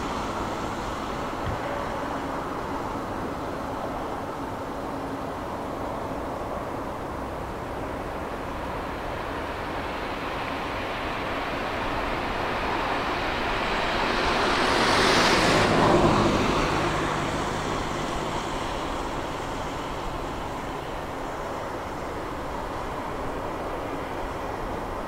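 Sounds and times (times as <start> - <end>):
jet airliner taking off: 0.0 - 25.0.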